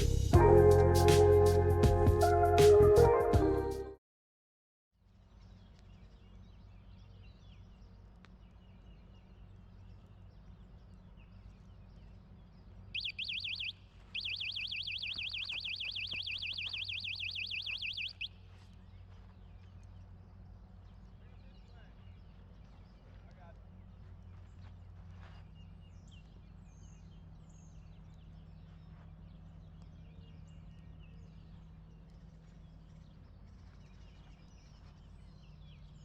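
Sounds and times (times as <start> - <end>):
low steady hum: 5.1 - 36.0
faint bird chirps: 8.7 - 36.0
electronic alarm warbling: 13.0 - 18.3.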